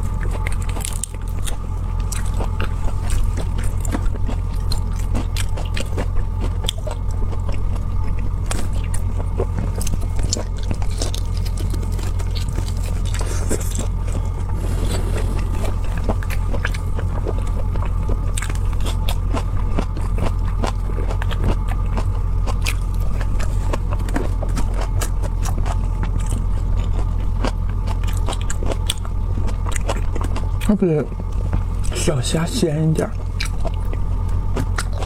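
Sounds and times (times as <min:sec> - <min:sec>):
low electrical hum: 0:00.0 - 0:35.0
wet biting and chewing: 0:00.1 - 0:14.0, 0:17.8 - 0:30.7.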